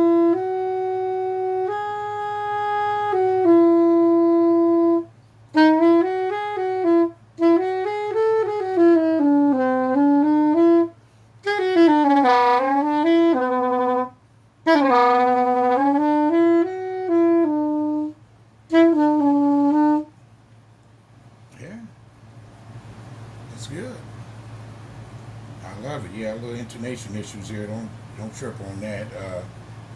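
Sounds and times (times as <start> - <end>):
soprano saxophone melody: 0.0 - 20.2.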